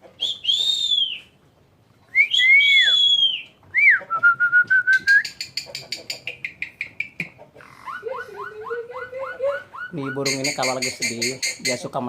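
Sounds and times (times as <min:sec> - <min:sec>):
bird rapid repeated notes: 0:09.7 - 0:12.0.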